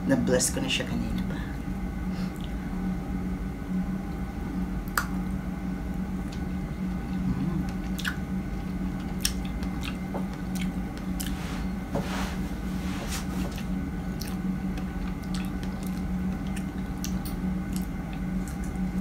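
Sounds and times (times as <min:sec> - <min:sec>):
steady low hum: 0:00.0 - 0:19.0
person chewing: 0:06.3 - 0:11.5, 0:13.6 - 0:19.0.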